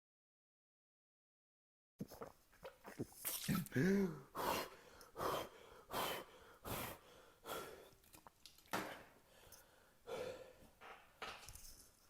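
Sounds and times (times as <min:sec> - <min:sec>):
person breathing heavily: 0:03.6 - 0:08.0, 0:09.0 - 0:10.8.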